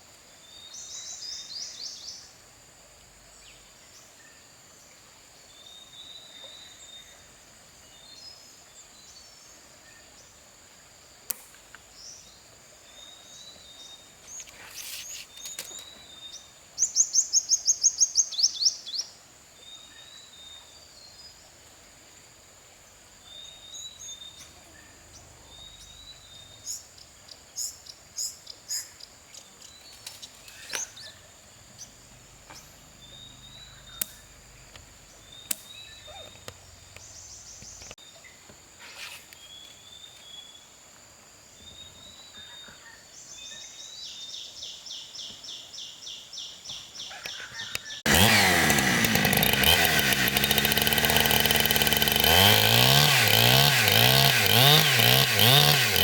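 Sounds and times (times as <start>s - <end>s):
insect drone: 0.3s - 42.3s
birds chirping: 23.2s - 38.0s, 41.6s - 56.0s
chainsaw revving: 30.4s - 35.7s, 48.0s - 56.0s.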